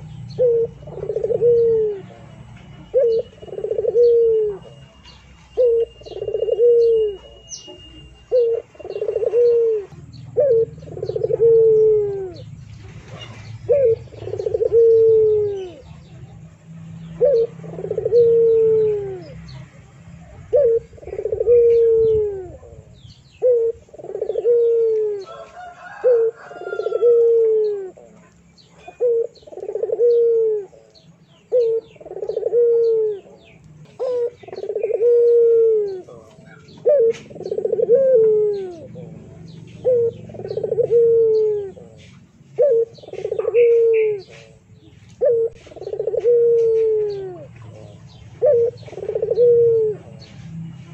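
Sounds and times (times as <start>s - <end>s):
high bird chirps: 0.0s - 12.6s
bird cooing: 0.0s - 50.9s.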